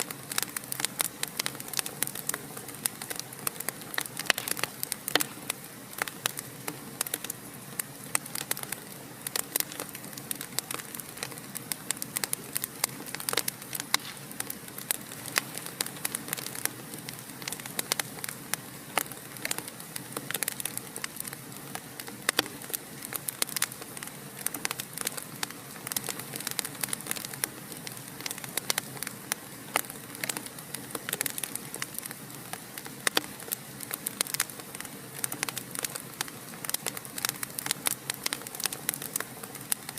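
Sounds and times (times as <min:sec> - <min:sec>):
fire crackling in a fireplace: 0:00.0 - 0:39.9.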